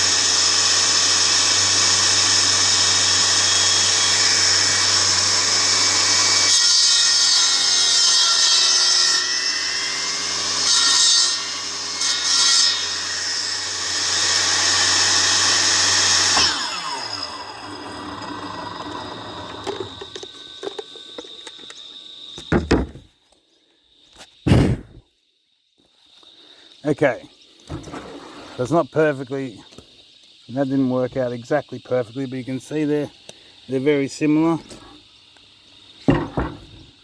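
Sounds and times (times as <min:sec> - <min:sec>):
power saw cutting wood: 0:00.0 - 0:23.0, 0:35.9 - 0:37.0
wood knocking: 0:22.4 - 0:23.1, 0:36.1 - 0:36.9.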